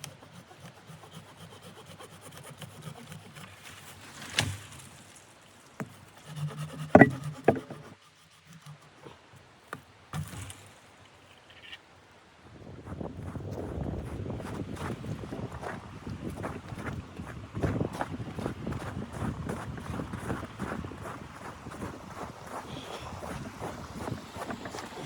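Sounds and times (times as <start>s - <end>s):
knocks and clunks: 6.9s - 7.9s.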